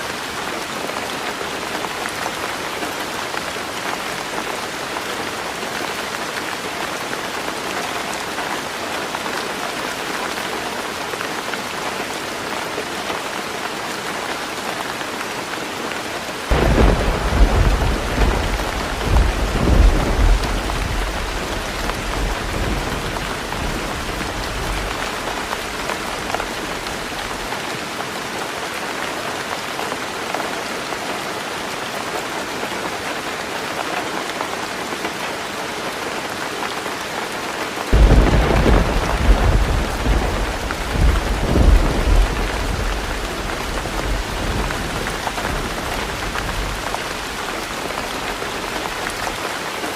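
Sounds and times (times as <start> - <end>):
heavy rain on a tin roof: 0.0 - 49.9
thunder rumbling: 16.5 - 27.5, 38.0 - 49.3.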